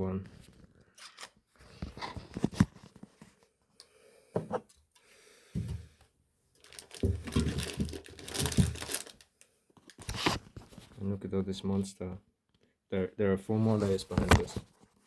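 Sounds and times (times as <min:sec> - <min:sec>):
rustling and crinkling: 0:00.2 - 0:03.6, 0:06.6 - 0:11.1, 0:13.6 - 0:15.0.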